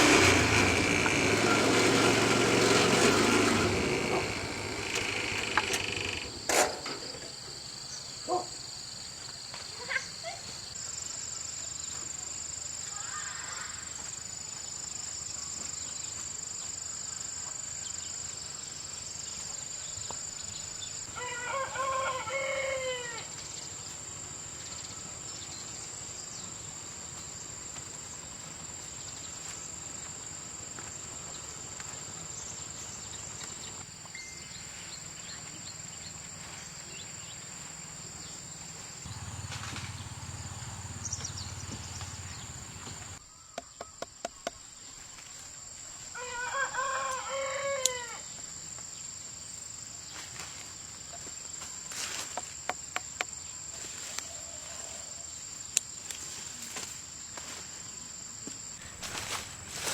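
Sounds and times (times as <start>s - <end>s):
rooster crowing: 21.1s - 23.3s, 46.1s - 48.2s.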